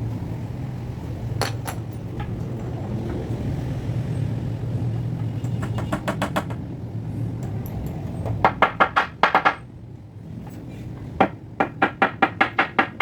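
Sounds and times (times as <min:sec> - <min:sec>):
rapid sharp knocks: 0:05.5 - 0:06.7, 0:08.3 - 0:09.6, 0:11.2 - 0:13.0.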